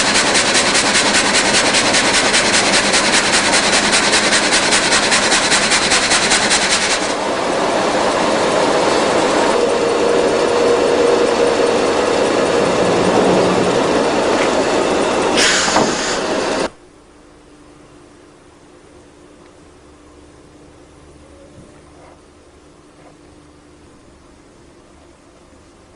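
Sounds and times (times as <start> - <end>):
rapid rattle: 0.0 - 7.2
rip saw machine running: 0.0 - 16.8
faint hum: 7.3 - 25.9
brief sharp hiss: 15.4 - 16.4.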